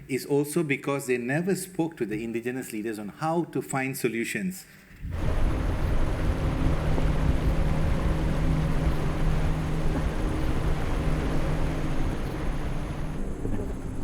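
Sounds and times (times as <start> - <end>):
boat engine humming: 5.1 - 14.0.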